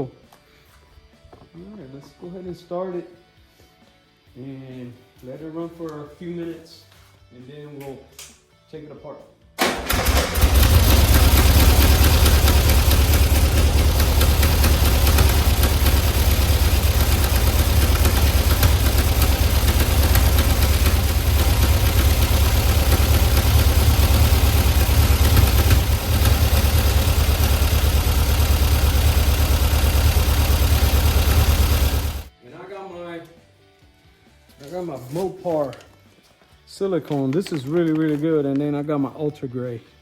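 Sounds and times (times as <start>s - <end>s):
car engine idling: 10.0s - 32.3s.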